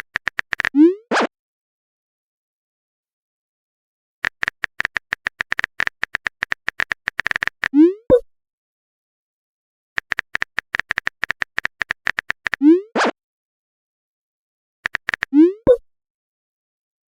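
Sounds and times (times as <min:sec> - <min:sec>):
phone keyboard typing clicks: 0:00.0 - 0:00.8, 0:04.2 - 0:07.8, 0:10.0 - 0:12.6, 0:14.8 - 0:15.8.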